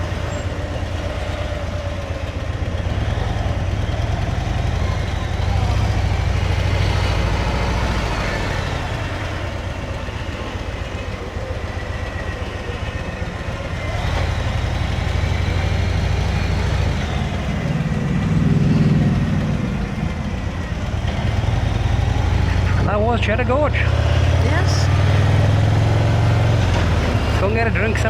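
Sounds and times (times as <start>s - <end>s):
motorcycle engine running: 0.0s - 28.0s
road noise: 0.0s - 28.0s.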